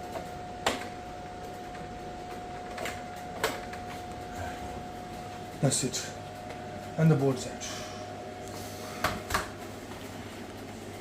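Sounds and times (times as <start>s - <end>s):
thin high hum: 0.0s - 11.0s.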